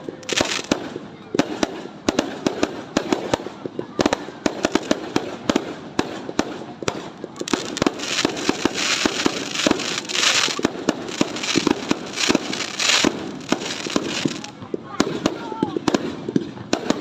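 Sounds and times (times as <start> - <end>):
fireworks crackling hiss: 0.0 - 3.3, 6.2 - 16.1
fireworks bangs and pops: 0.0 - 17.0.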